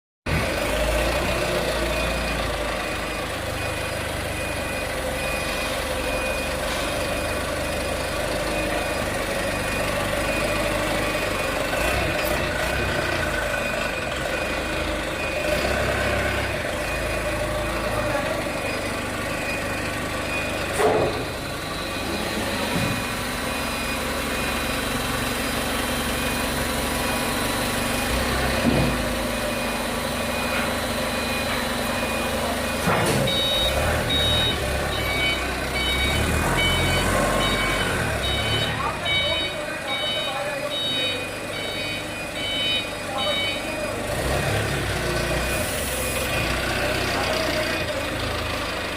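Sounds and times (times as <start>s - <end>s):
high beep: 1.7s - 7.6s, 29.5s - 44.0s.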